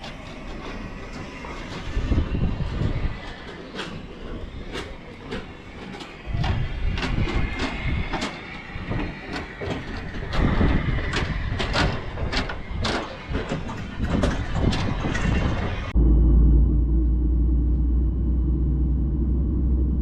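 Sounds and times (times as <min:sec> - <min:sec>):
knocks and rattles: 0:00.0 - 0:16.0
low cabin rumble: 0:00.0 - 0:20.0.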